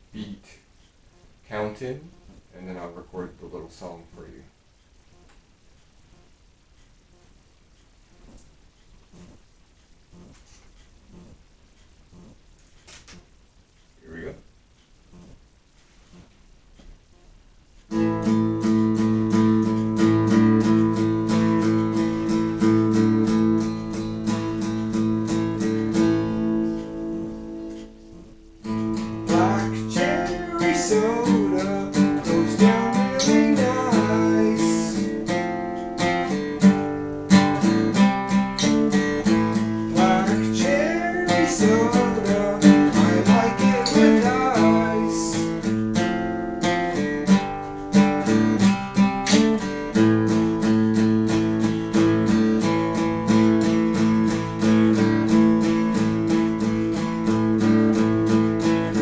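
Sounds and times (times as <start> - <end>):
guitar picked melody notes: 17.9 - 59.0
guitar strummed chords: 17.9 - 59.0.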